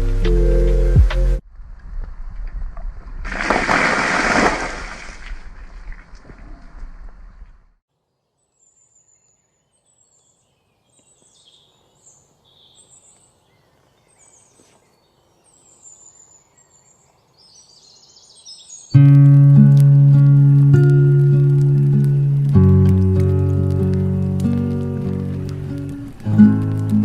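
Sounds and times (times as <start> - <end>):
loud music: 0.0 - 1.4
birds chirping: 8.1 - 19.0.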